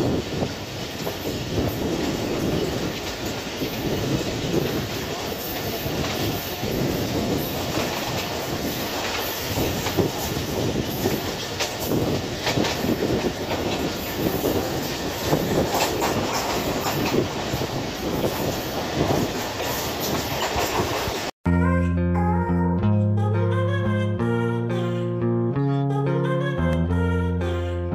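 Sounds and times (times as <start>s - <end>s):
wheels clattering over rail joints: 0.0s - 21.3s
train wheels rumbling on track: 0.0s - 21.4s.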